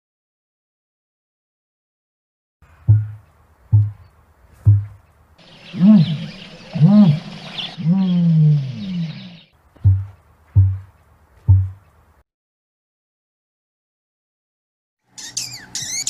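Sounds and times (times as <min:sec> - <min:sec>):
ostrich rising and falling calls: 0:05.4 - 0:10.8, 0:15.1 - 0:16.0.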